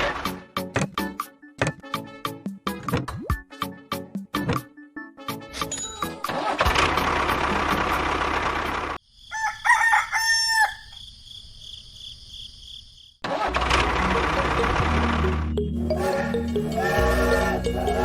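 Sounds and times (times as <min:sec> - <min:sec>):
rooster crowing: 0:09.2 - 0:11.0.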